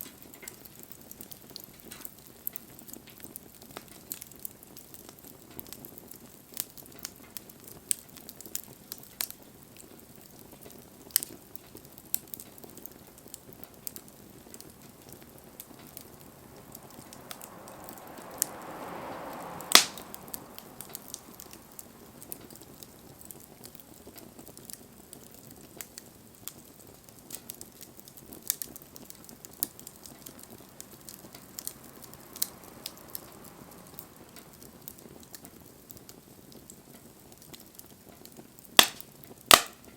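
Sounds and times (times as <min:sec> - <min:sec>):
wood fire crackling: 0:00.0 - 0:39.9
loud pop: 0:19.7 - 0:20.2, 0:38.8 - 0:39.8.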